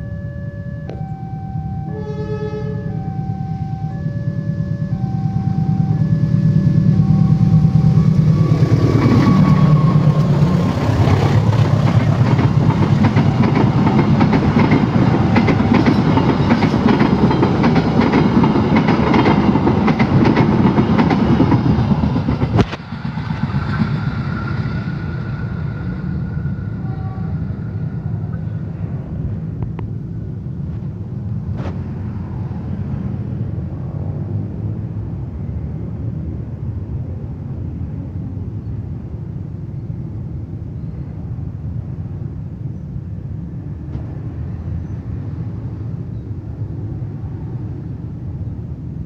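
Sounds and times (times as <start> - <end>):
level crossing alarm two-tone: 0.0 - 8.6
diesel locomotive engine: 0.0 - 49.0
wheels clacking over rail joints: 8.1 - 24.5.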